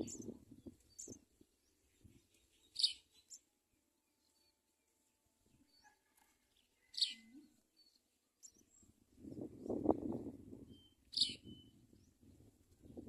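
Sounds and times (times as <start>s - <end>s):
sparrows chirping: 0.0s - 3.5s, 6.6s - 10.0s, 10.6s - 12.3s.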